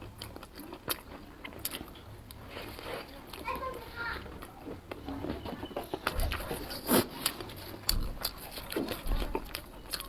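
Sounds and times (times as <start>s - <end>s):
chewing and crunching food: 0.0s - 10.0s.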